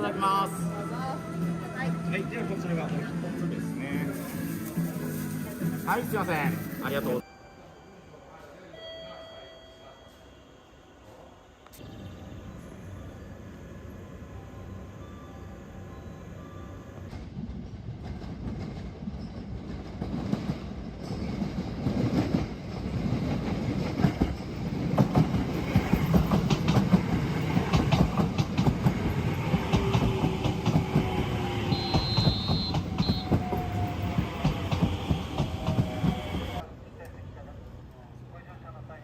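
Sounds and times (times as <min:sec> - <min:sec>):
train wheels clattering on rails: 0:17.1 - 0:36.6.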